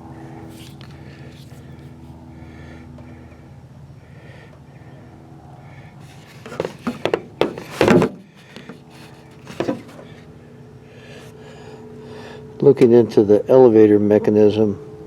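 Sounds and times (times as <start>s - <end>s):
steady low hum: 0.0s - 13.2s
knocks and scrapes of handling: 6.0s - 10.2s.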